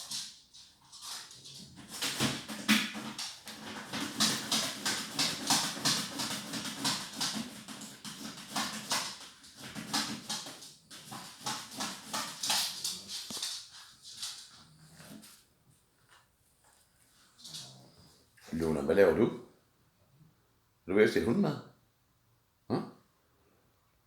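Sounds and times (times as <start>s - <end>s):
dog crunching dry food: 1.8s - 14.4s.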